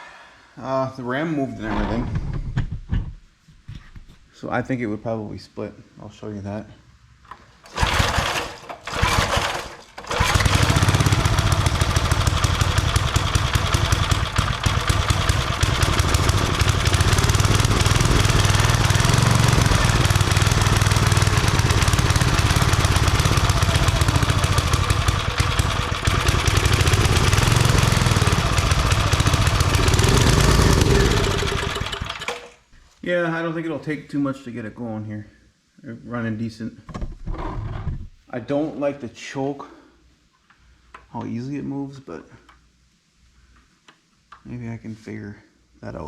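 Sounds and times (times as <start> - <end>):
single-cylinder engine running: 7.7 - 32.5.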